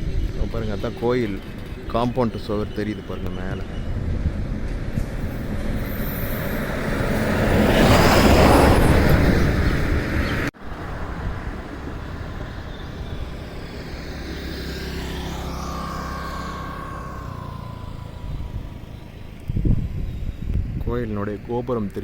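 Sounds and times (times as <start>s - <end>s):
wind rush: 0.0s - 21.4s
scooter engine rumble: 0.0s - 22.0s.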